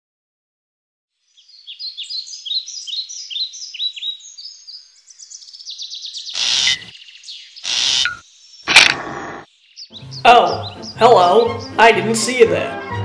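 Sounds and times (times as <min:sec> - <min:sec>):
birds chirping: 0:01.2 - 0:12.5
loud noise bursts: 0:08.7 - 0:09.5.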